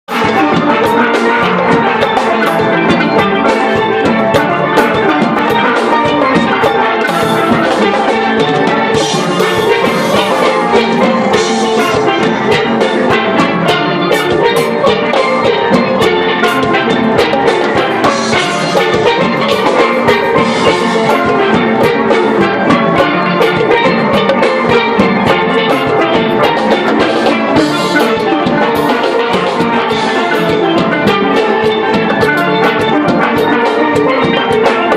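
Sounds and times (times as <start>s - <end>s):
drums: 0.0s - 34.9s
steelpans playing melody: 0.1s - 34.9s.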